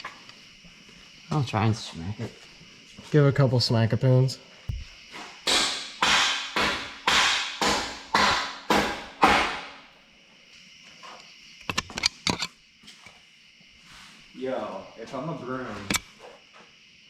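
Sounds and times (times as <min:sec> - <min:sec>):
hammer striking exhaust pipe: 0:04.7 - 0:09.8.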